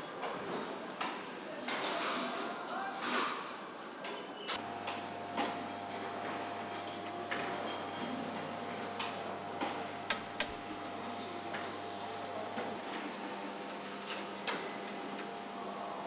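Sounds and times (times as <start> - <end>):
steady machine hum: 0.0 - 1.0, 4.6 - 16.0.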